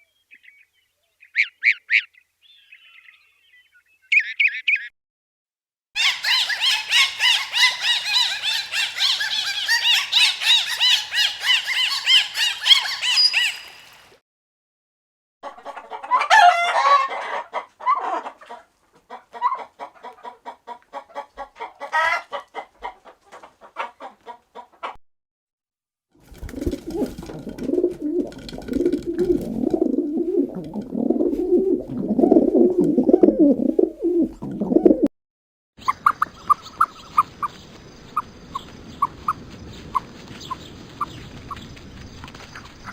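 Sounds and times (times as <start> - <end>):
lower repeated animal calls: 6.0 - 14.1
high bird chirps: 6.0 - 14.2
quick calls with sliding notes: 6.0 - 14.2.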